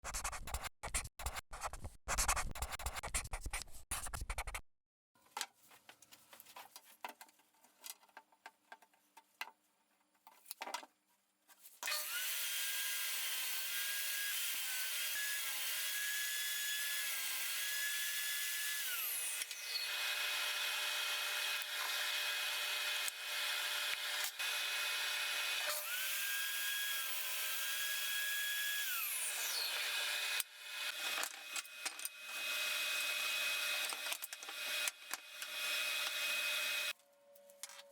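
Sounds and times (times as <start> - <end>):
power tool cutting wood: 11.8 - 37.0.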